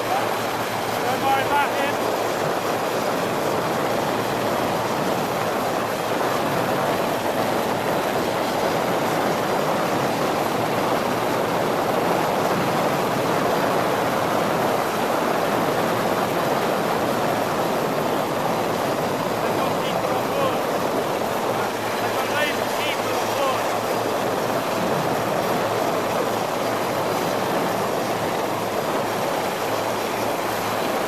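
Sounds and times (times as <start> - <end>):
boat rushing across water: 0.0 - 31.0.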